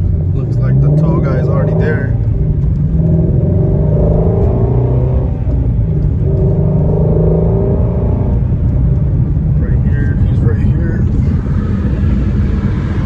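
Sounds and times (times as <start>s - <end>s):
car engine and exhaust droning: 0.0s - 13.0s.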